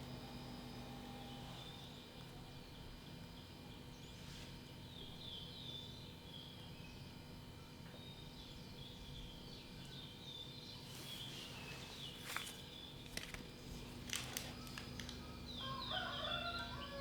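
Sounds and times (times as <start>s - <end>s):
small birds chirping: 0.0s - 7.2s, 7.9s - 13.2s
outdoor ambience: 0.0s - 17.0s.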